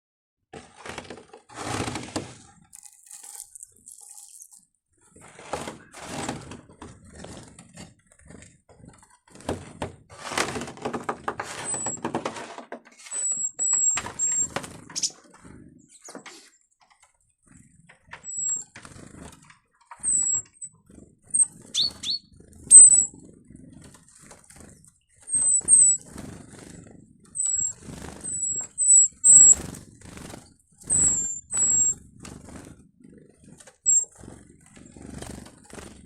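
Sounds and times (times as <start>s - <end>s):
high-pitched bird calls: 20.0s - 20.7s, 21.4s - 23.1s, 27.4s - 29.6s, 30.9s - 32.0s
small birds flapping wings: 23.7s - 32.8s, 33.4s - 36.0s.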